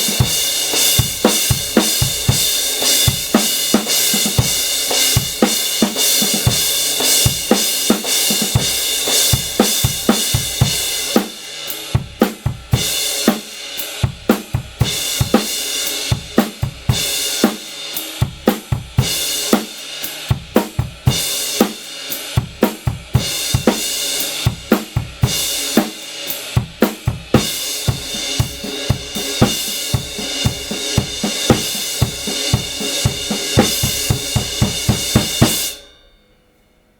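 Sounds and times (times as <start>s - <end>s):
drum kit playing: 0.0s - 35.9s
crash cymbal ringing: 27.6s - 36.9s.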